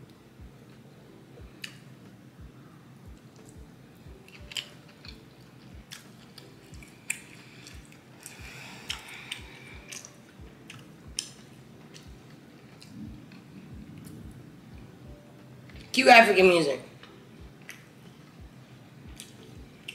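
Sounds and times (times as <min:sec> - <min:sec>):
chewing with wet mouth smacks: 0:05.8 - 0:13.0
soft low thuds: 0:12.9 - 0:15.2.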